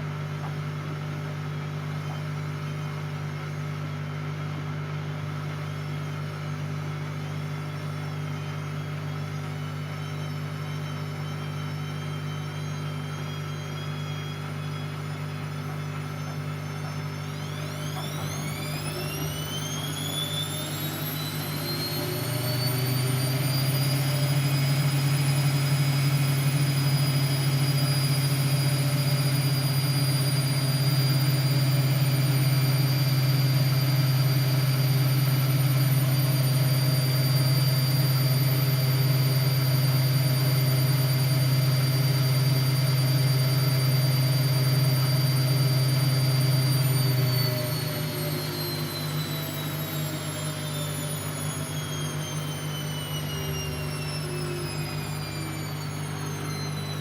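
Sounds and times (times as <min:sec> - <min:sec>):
washing machine motor spinning: 0:00.0 - 0:57.0.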